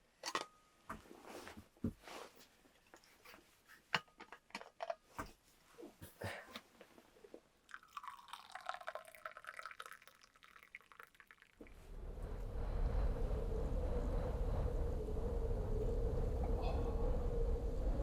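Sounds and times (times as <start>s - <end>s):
loud steady rush: 11.7s - 18.0s.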